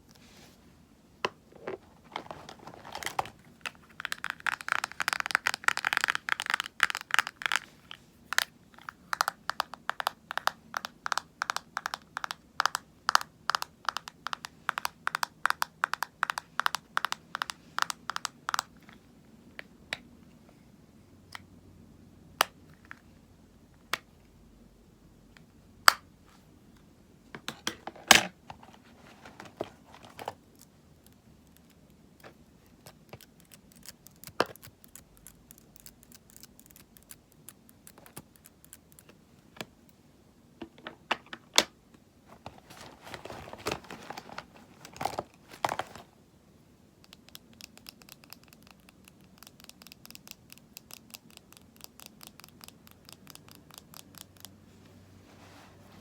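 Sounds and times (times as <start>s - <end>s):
clicks and taps on cosmetics: 8.3s - 18.8s.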